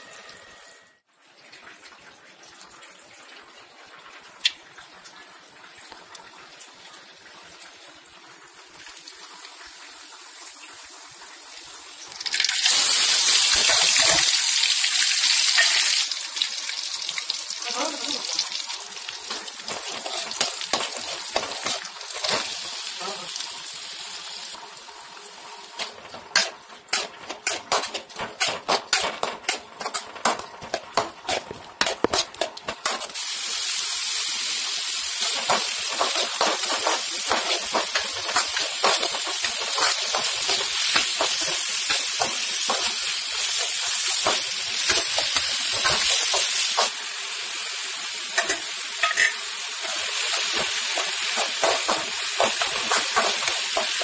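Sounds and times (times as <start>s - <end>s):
oil sizzling in a wok: 6.1s - 54.0s
metal spatula scraping pan: 25.8s - 33.2s, 35.2s - 46.9s, 48.4s - 54.0s.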